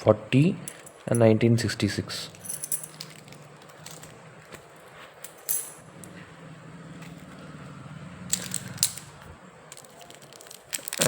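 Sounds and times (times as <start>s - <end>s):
low steady hum: 0.0s - 11.0s
coins clinking: 0.7s - 1.4s, 2.2s - 6.1s, 8.3s - 11.0s.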